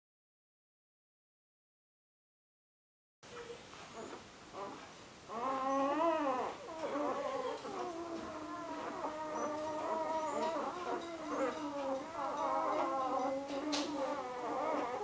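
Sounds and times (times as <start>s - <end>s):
puppies crying and whining: 3.4s - 15.0s.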